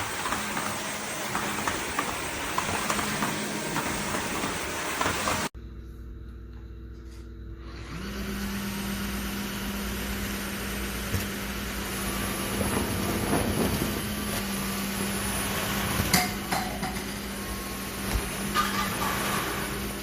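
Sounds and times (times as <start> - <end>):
sharp knocks and clatters: 0.0 - 5.5
vacuum mop running: 0.0 - 5.5, 7.6 - 20.0.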